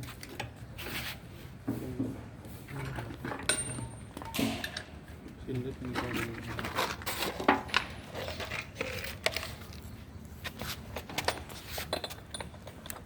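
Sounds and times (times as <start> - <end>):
metal parts clinking: 11.0 - 13.0.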